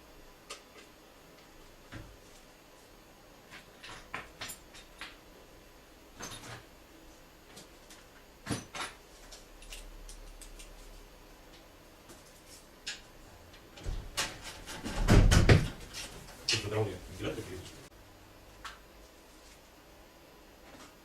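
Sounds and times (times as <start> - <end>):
tools and parts clicking and knocking: 3.5 - 5.2, 6.2 - 6.6, 7.5 - 10.9.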